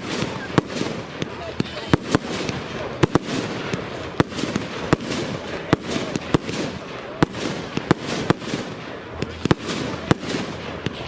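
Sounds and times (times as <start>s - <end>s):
fireworks bangs: 0.0s - 11.0s
fireworks bursting noise: 0.0s - 11.0s.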